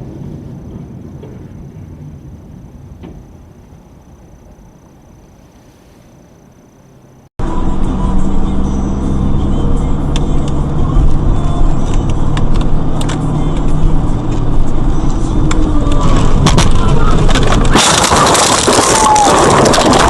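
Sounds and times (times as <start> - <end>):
car engine and road noise: 0.0 - 20.0
scattered clicks: 11.8 - 13.8.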